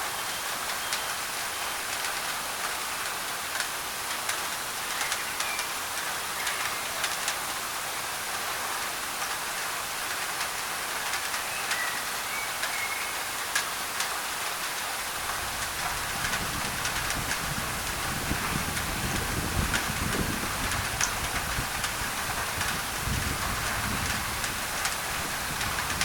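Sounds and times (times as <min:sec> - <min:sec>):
rain drumming on a tin roof: 0:00.0 - 0:26.0
faint bird whistles: 0:11.4 - 0:13.3.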